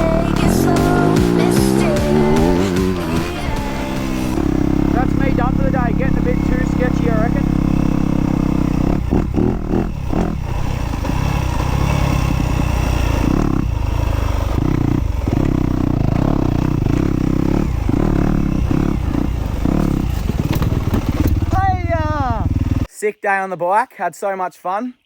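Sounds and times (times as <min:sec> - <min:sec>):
dirt bike engine revving: 0:00.0 - 0:22.9.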